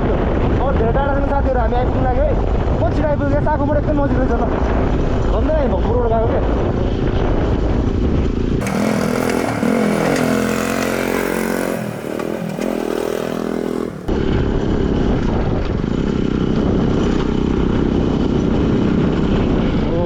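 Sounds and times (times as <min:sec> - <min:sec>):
wind rumble on microphone: 0:00.0 - 0:08.6, 0:14.1 - 0:20.0
motorcycle engine running: 0:08.6 - 0:20.0.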